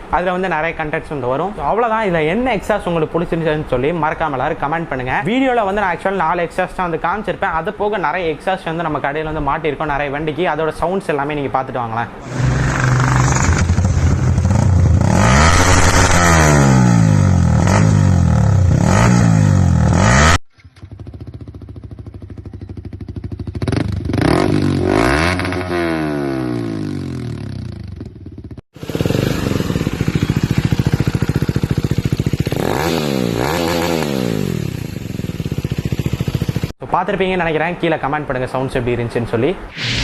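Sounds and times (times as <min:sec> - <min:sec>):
motorcycle engines revving: 0:12.2 - 0:36.7.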